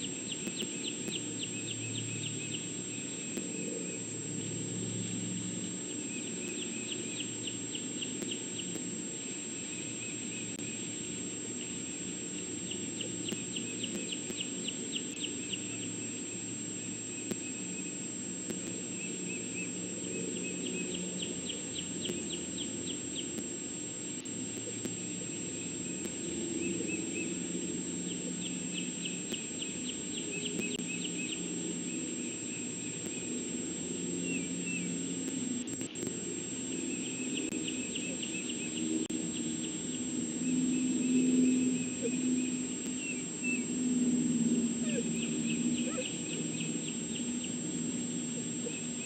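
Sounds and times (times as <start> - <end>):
faint high whine: 0.0 - 49.0.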